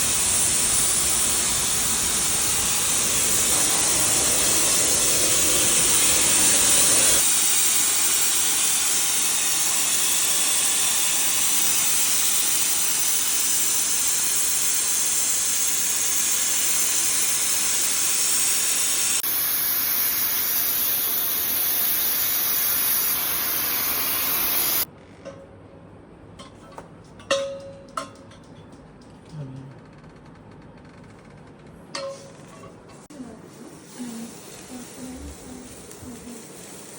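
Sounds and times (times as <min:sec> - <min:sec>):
liquid nitrogen hissing through hose: 0:00.0 - 0:24.9, 0:33.2 - 0:36.9.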